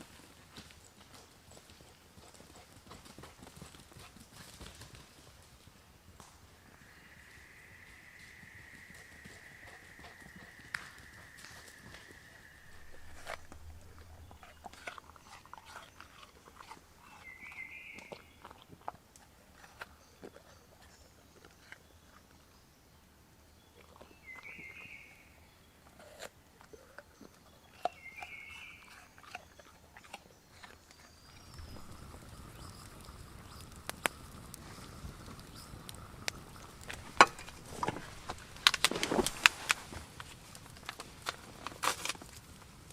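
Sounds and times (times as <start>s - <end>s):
faint clicks and crunches: 12.7s - 21.8s, 28.9s - 42.9s.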